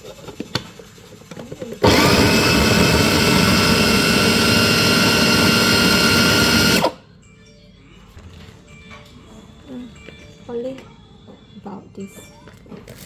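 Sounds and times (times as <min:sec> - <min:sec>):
electric blender motor running: 0:01.6 - 0:07.0.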